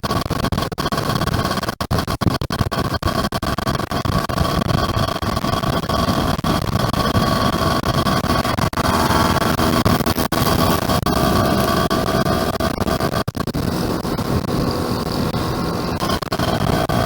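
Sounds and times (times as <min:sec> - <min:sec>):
two-stroke motorcycle engine running: 0:06.9 - 0:17.0.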